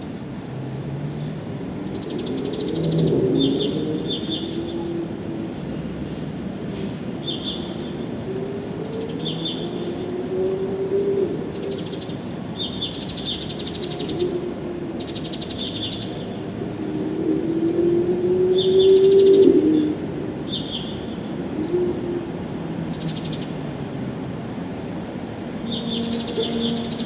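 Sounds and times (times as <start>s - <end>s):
songbird chirping and trilling: 0.3s - 27.0s.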